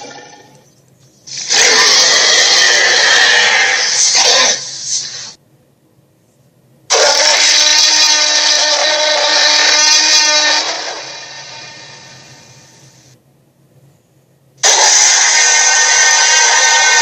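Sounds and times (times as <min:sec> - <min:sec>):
steady pitched tone: 0:00.0 - 0:00.8
dragon roar: 0:01.4 - 0:04.7, 0:06.9 - 0:12.1, 0:14.6 - 0:17.0.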